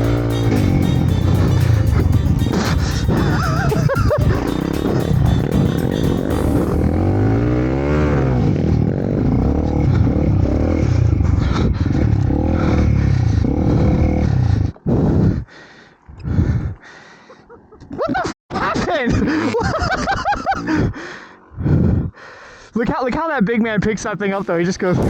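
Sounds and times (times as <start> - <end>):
dirt bike engine revving: 0.0 - 14.2.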